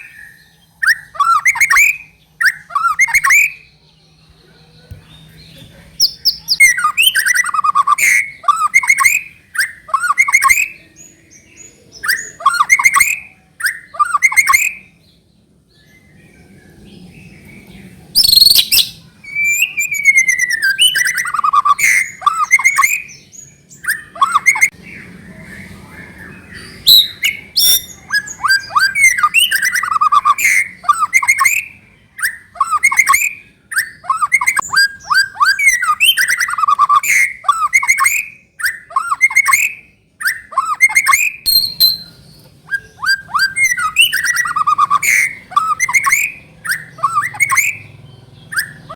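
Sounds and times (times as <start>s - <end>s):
bird singing whistles and trills: 0.0s - 3.9s, 4.8s - 15.1s, 15.7s - 48.9s.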